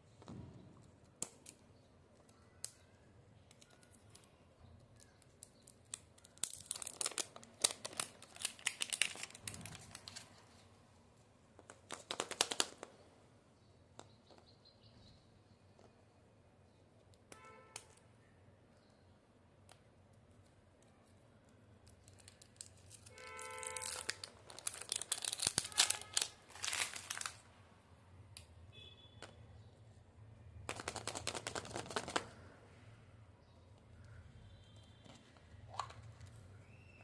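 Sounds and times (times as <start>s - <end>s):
plastic wrapper crinkling and tearing: 5.0s - 10.7s, 21.8s - 27.6s, 30.6s - 32.5s.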